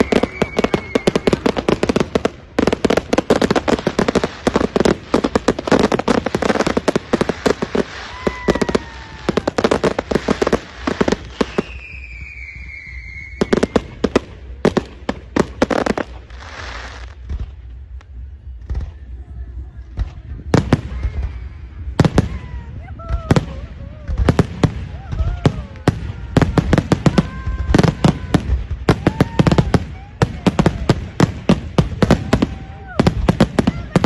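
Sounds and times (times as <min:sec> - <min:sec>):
fireworks whistling falling in pitch: 0:00.0 - 0:02.2, 0:05.7 - 0:14.0
fireworks bangs and crackles: 0:00.0 - 0:34.0.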